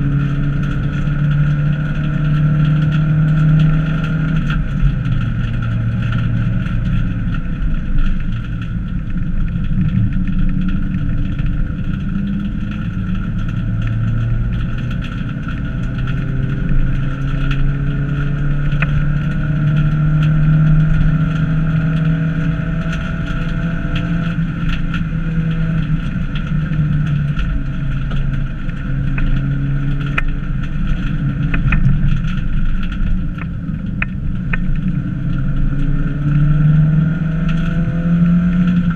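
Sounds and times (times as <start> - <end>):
sharp clicks and knocks: 21.9 - 36.4.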